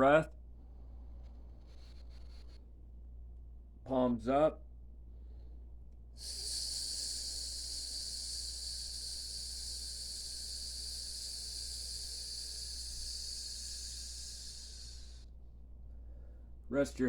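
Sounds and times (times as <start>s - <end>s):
person exhaling hiss through teeth: 6.2s - 15.2s.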